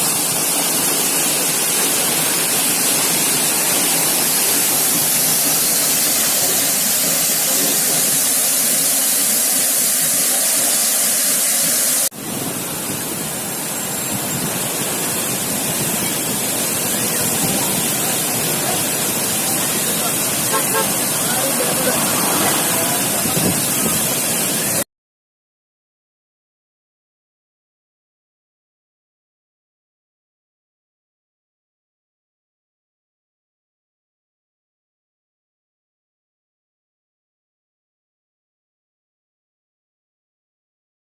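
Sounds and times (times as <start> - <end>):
waterfall rushing: 0.0 - 24.8.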